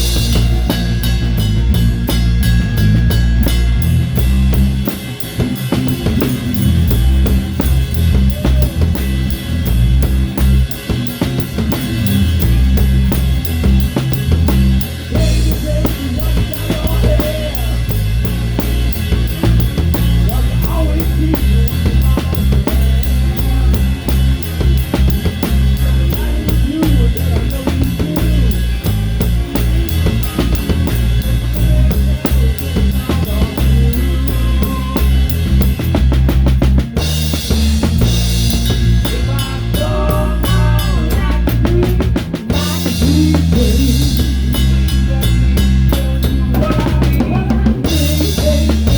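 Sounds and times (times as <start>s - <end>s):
cymbals crashing: 0.0s - 16.4s, 37.0s - 41.4s
bass guitar: 0.0s - 48.9s
drum kit playing a rock beat: 0.0s - 48.9s
electric guitar: 0.0s - 48.9s.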